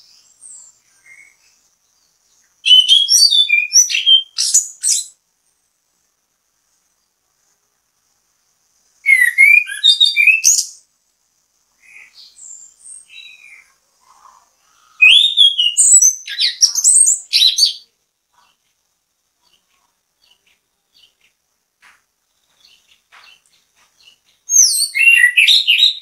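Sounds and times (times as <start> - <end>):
thrush singing whistled notes: 0.0 - 5.2, 9.0 - 10.8, 14.8 - 17.9, 22.6 - 26.0.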